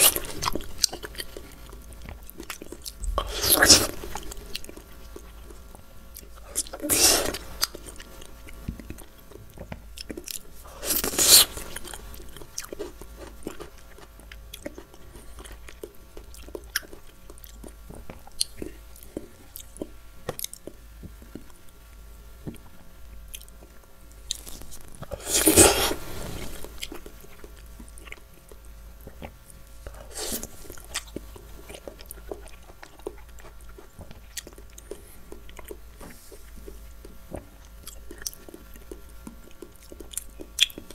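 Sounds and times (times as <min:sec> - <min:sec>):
person chewing soft fruit: 0:00.0 - 0:40.9
loud biting bursts: 0:03.0 - 0:04.2, 0:10.8 - 0:11.7, 0:25.1 - 0:26.1.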